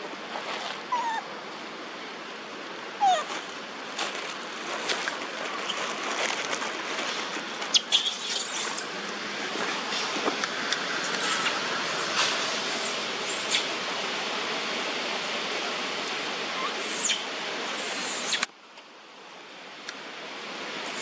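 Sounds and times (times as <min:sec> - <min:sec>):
steady noisy hiss: 0:00.0 - 0:21.0
monkeys squeaking: 0:03.0 - 0:03.3, 0:07.7 - 0:08.9, 0:11.0 - 0:13.7, 0:16.6 - 0:18.5.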